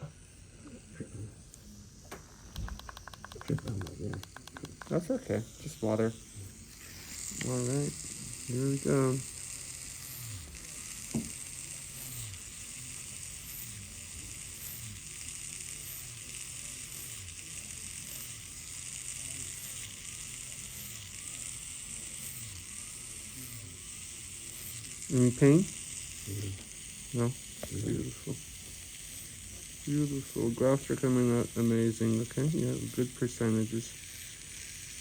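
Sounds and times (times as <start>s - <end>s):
motorized punch hissing: 0.0s - 35.0s.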